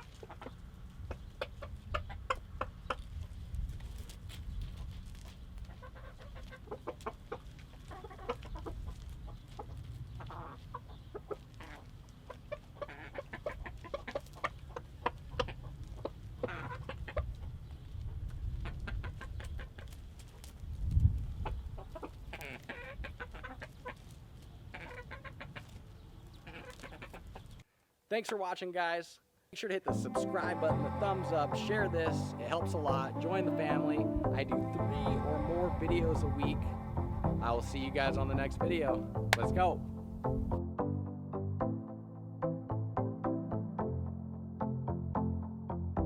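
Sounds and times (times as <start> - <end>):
rooster clucking: 5.7 - 8.9, 9.5 - 17.3.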